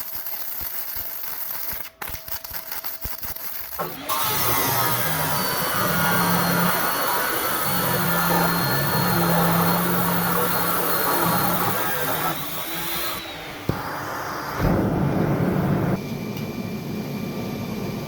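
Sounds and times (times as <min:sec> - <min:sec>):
power grinder grinding steel: 0:00.0 - 0:14.2.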